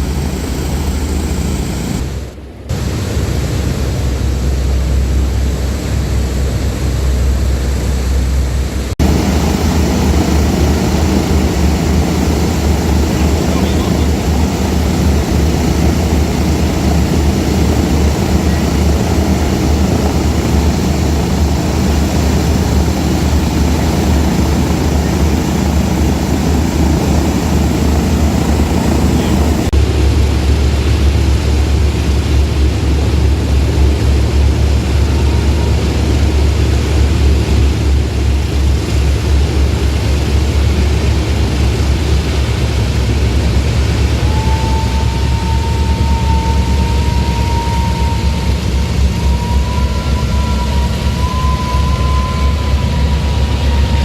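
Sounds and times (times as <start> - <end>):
propeller engine drone: 0.0 - 54.0.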